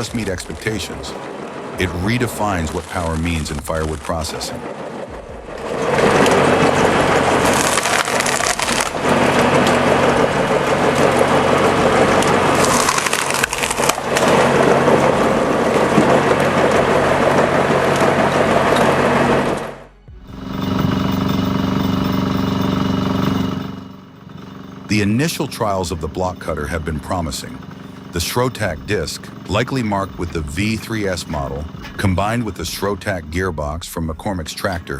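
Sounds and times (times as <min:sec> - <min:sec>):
wood cracking and crushing: 0:00.0 - 0:19.7
log splitter engine hum: 0:00.0 - 0:34.9
machine droning: 0:00.0 - 0:34.9.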